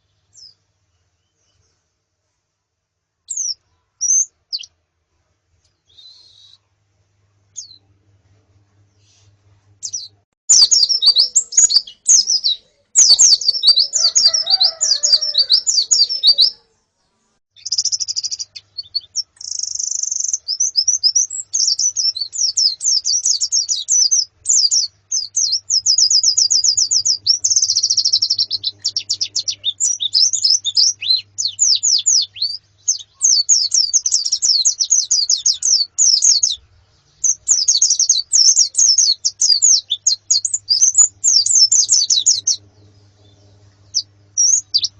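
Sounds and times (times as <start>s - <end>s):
birds chirping and twittering: 7.6s - 7.9s, 9.8s - 16.7s, 17.6s - 44.9s.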